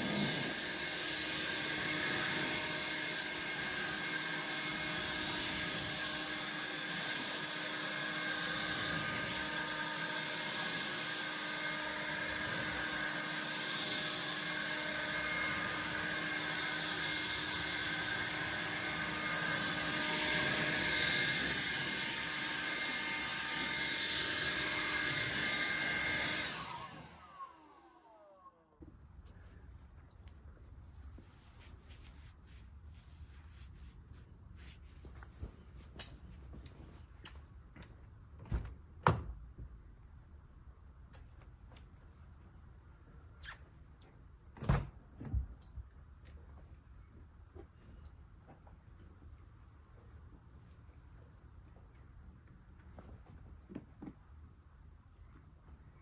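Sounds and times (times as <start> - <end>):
small motor whining: 0.0 - 29.4.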